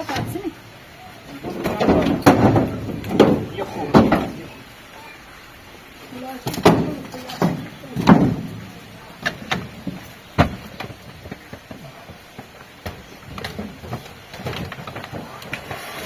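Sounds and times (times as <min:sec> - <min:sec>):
knocks and thumps: 0:01.4 - 0:04.5, 0:06.4 - 0:15.8.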